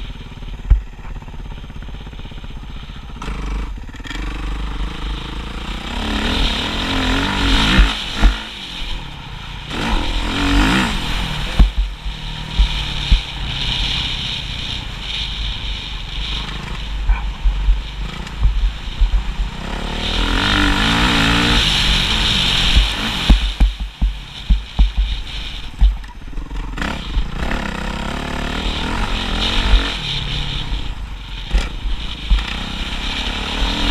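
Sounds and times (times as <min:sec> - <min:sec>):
motorcycle engine revving: 0:00.0 - 0:33.9
low thumps: 0:06.3 - 0:08.6, 0:09.7 - 0:13.4, 0:16.5 - 0:27.7.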